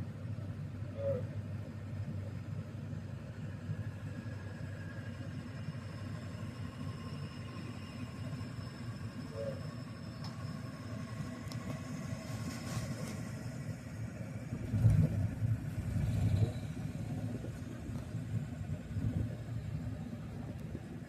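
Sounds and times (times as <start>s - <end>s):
vehicle engine and road rumble: 0.0s - 21.0s.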